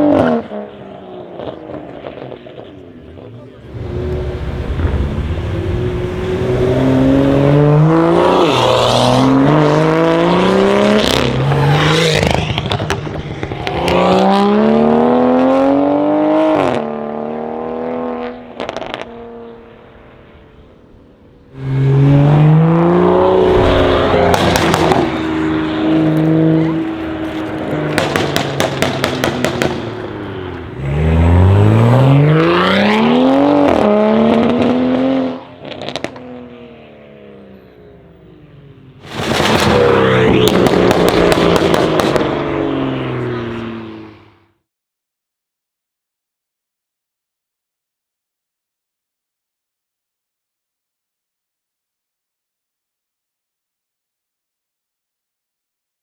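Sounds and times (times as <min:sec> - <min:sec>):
car engine accelerating hard: 0:00.0 - 0:20.1, 0:21.5 - 0:44.4
exhaust crackles and pops: 0:12.2 - 0:14.0, 0:23.4 - 0:30.7, 0:39.0 - 0:42.5.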